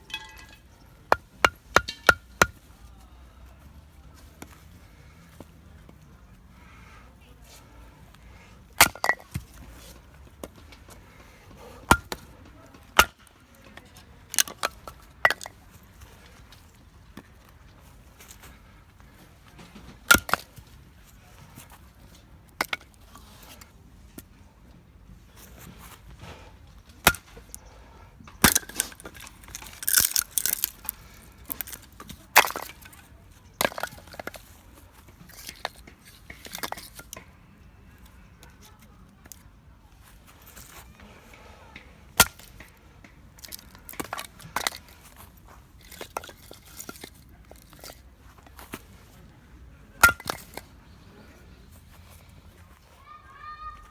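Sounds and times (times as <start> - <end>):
hard objects knocking and clinking: 0.0 - 2.6, 28.4 - 32.9, 50.0 - 50.7.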